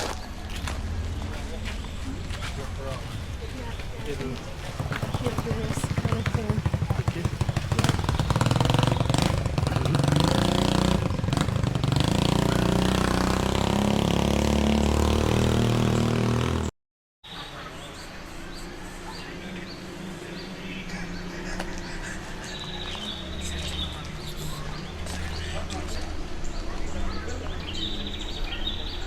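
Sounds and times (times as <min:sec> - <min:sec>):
vehicle engine running: 0:00.0 - 0:16.7
outdoor ambience: 0:00.0 - 0:29.0.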